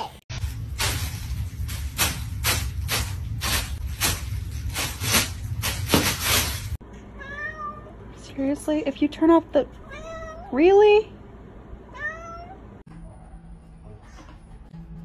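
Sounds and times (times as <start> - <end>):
cat meowing: 7.2 - 8.0, 9.8 - 10.6, 11.9 - 12.6.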